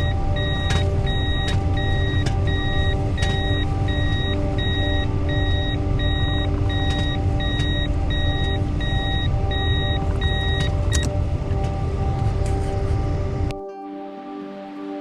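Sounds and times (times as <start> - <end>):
repeating electronic beep: 0.0 - 11.2
low vehicle rumble: 0.0 - 13.5.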